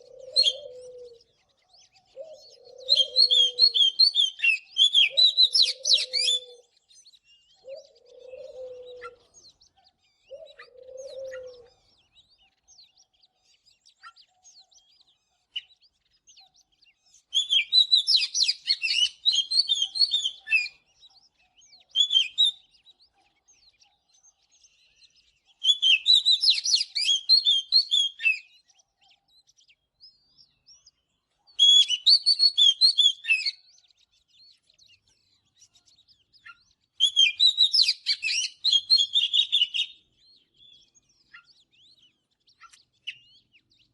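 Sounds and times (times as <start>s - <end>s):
bird singing whistled phrases: 2.2s - 9.2s, 17.3s - 20.8s, 21.7s - 22.7s, 25.6s - 28.6s, 31.6s - 33.9s, 36.4s - 43.6s
low cooing notes: 7.8s - 9.1s.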